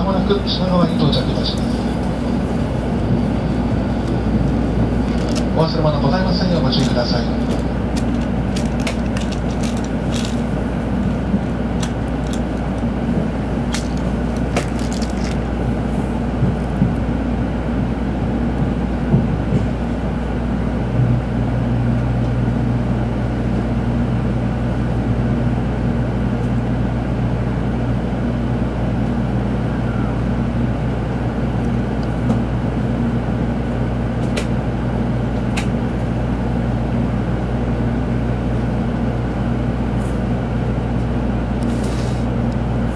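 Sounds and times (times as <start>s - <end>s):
steady low hum: 0.0s - 42.9s
train rumble from inside: 0.0s - 42.9s.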